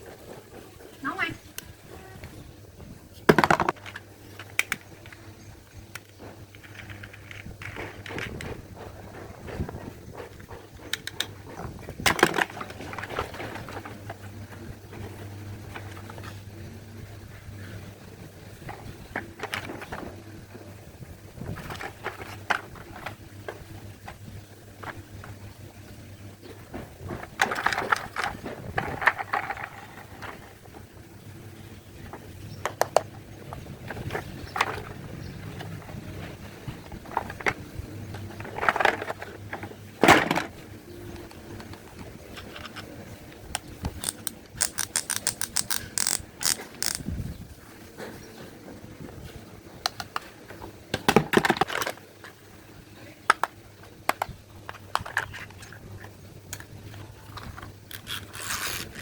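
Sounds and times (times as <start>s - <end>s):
plastic toys knocking and scraping: 3.2s - 5.3s, 5.9s - 16.4s, 18.6s - 20.2s, 21.4s - 25.4s, 26.4s - 31.0s, 32.0s - 47.1s, 49.9s - 52.4s, 53.2s - 59.0s
small objects clicking: 43.8s - 47.1s.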